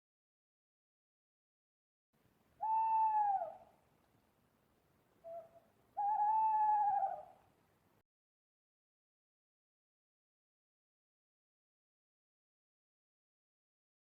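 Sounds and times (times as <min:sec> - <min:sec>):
owl hooting: 0:02.6 - 0:03.8, 0:05.2 - 0:07.4.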